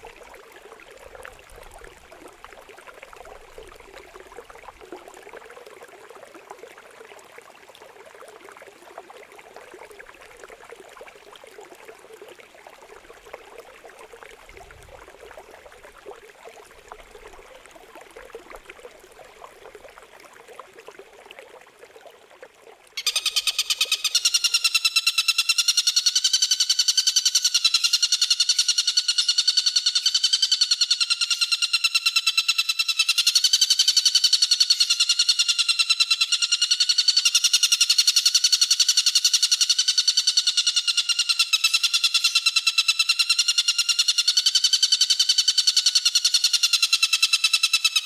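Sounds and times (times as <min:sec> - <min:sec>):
water trickling: 0:00.0 - 0:24.3.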